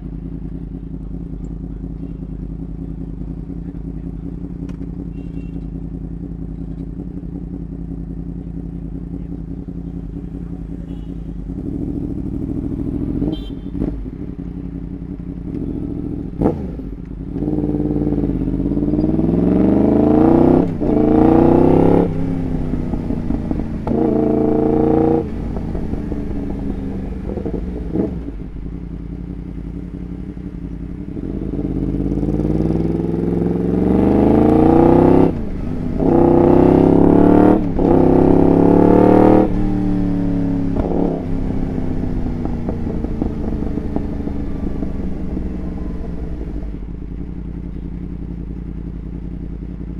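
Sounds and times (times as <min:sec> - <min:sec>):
motorcycle accelerating through gears: 0:05.8 - 0:49.9
sharp exhaust pops: 0:40.6 - 0:41.3.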